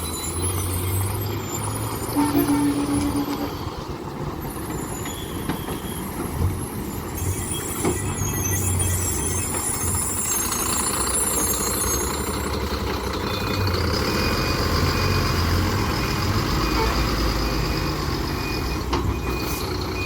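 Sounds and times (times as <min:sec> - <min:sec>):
truck diesel engine rumbling: 0:00.0 - 0:20.0
reversing alarm beeping: 0:04.5 - 0:20.0.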